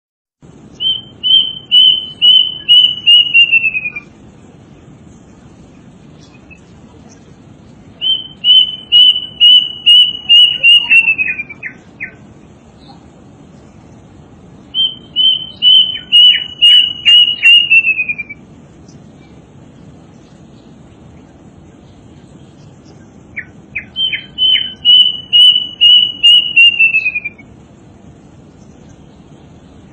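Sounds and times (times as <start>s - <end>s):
bird calling high repeated notes: 0.7s - 4.2s, 8.0s - 13.0s, 14.6s - 19.4s, 22.9s - 27.6s.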